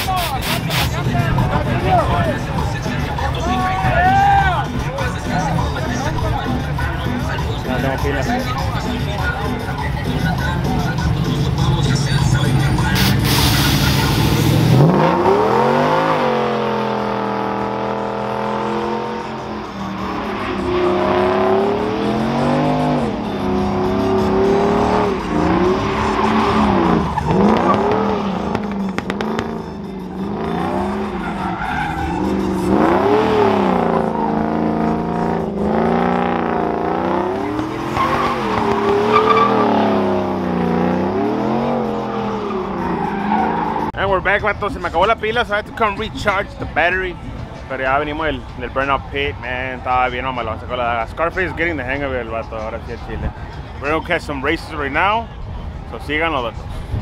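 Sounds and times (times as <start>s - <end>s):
truck engine revving: 0.0s - 3.9s, 4.5s - 44.0s
tyres squealing: 12.8s - 29.5s, 30.2s - 44.0s.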